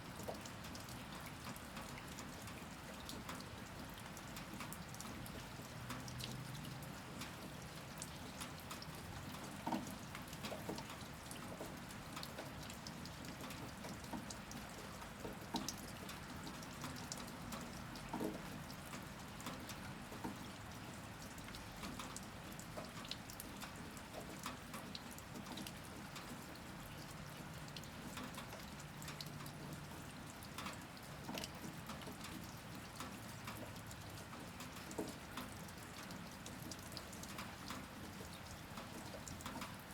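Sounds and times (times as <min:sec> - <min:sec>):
steady rain falling: 0:00.0 - 0:39.9
water drops dripping and tapping: 0:08.4 - 0:26.5, 0:27.7 - 0:39.8.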